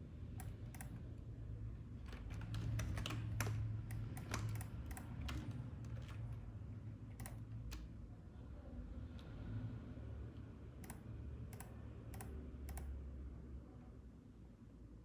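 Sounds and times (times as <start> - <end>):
low steady hum: 0.0 - 15.0
computer keyboard clicks: 0.4 - 1.1, 2.1 - 6.4, 7.1 - 7.9, 10.8 - 13.0.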